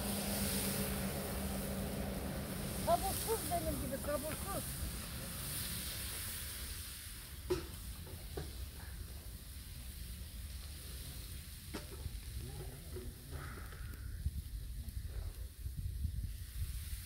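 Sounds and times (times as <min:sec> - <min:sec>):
low rumble: 0:00.0 - 0:06.5
food sizzling in a pan: 0:00.0 - 0:13.4, 0:15.8 - 0:17.0.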